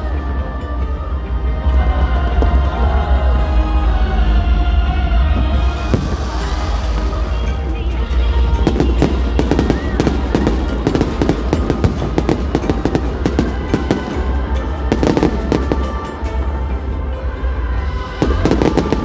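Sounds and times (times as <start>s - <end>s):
music playing: 0.0s - 19.0s
fireworks bangs and crackles: 5.8s - 7.6s, 8.6s - 16.4s, 18.2s - 19.0s.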